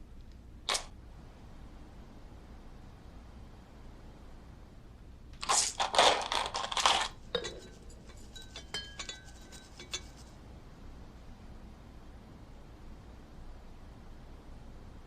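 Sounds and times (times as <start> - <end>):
small hard objects clinking: 5.4 - 9.4
rough rustling or scraping: 5.4 - 10.4.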